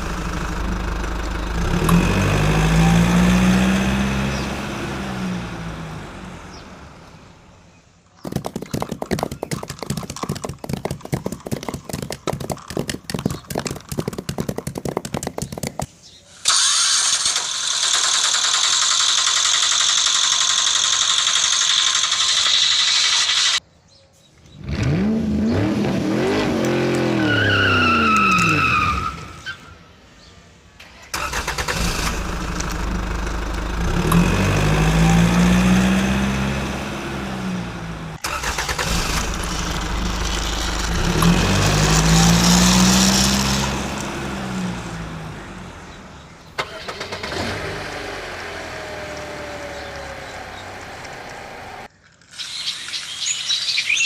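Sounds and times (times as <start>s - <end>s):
engine revving: 0.0s - 7.5s, 16.4s - 23.6s, 24.6s - 29.3s, 30.9s - 51.9s.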